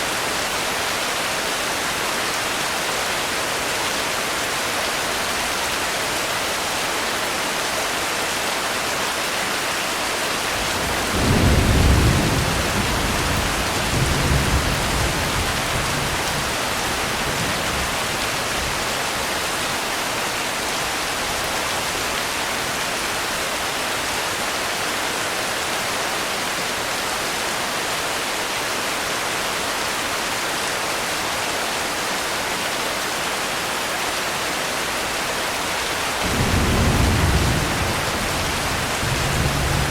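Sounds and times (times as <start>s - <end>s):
rain hiss: 0.0s - 39.9s
thunder rumbling: 10.5s - 18.9s, 36.2s - 39.9s.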